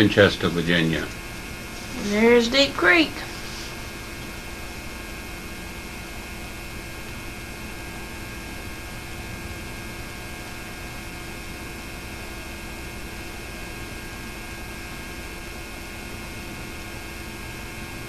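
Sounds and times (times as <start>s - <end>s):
even hiss: 0.0s - 4.1s
electrical hum with tones: 0.0s - 18.0s.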